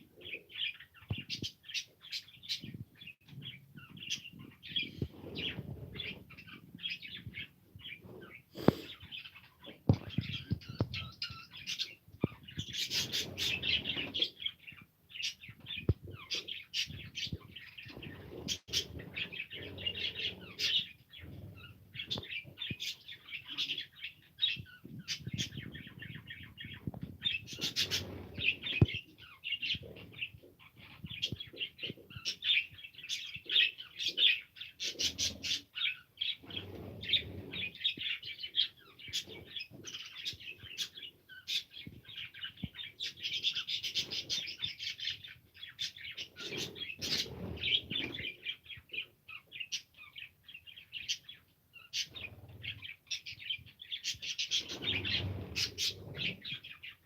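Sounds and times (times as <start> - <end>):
wing flutters: 54.5 - 56.6.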